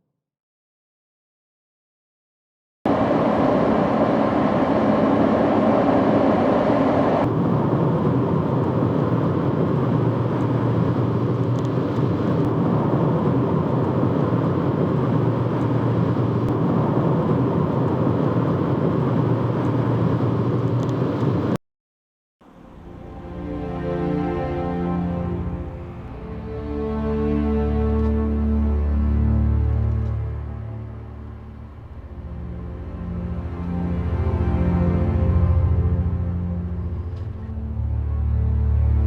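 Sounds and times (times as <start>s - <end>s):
road vehicle noise: 2.9s - 21.6s.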